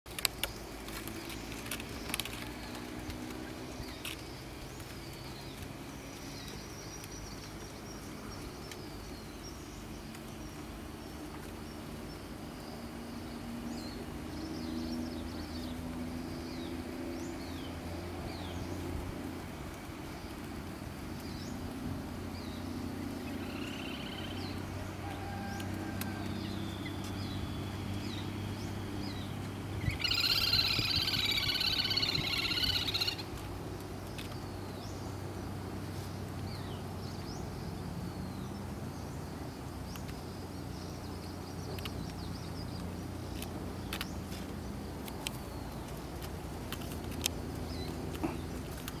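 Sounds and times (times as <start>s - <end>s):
birds chirping: 0.1s - 49.0s
bird trilling call: 29.2s - 33.4s.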